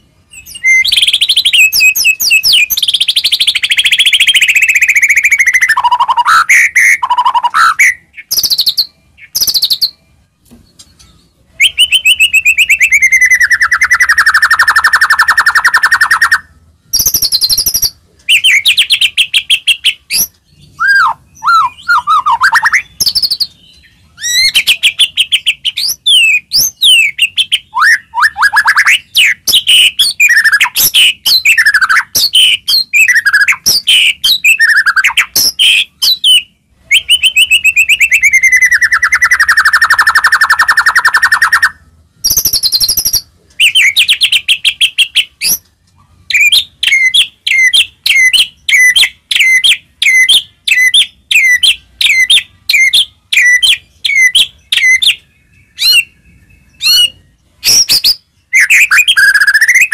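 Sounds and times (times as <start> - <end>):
songbird singing whistled notes: 0.0 - 59.9.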